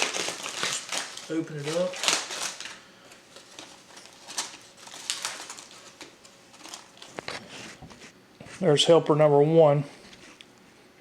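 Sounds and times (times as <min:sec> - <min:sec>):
aluminium foil crinkling: 0:00.0 - 0:07.8.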